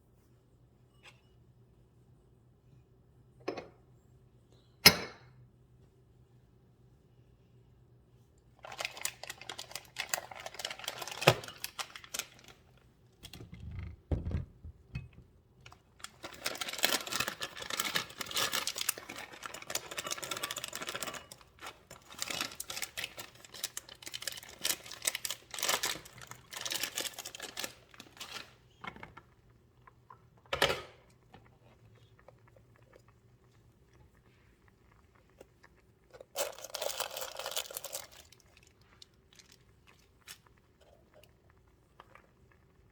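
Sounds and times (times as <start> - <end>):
crinkling and rustling: 8.6 - 41.3.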